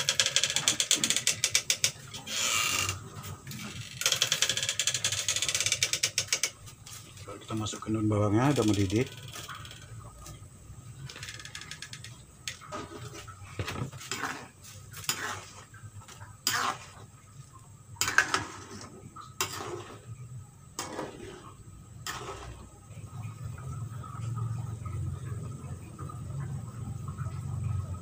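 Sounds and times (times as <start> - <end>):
metal utensil scraping a pot: 12.7 - 15.7, 16.4 - 17.1, 18.0 - 20.0, 20.8 - 22.6.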